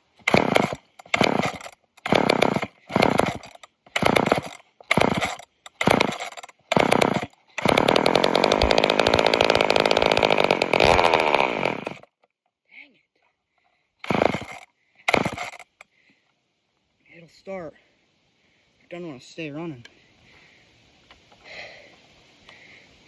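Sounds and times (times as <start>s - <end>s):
chainsaw engine sputtering: 0.0s - 12.2s, 14.0s - 15.8s.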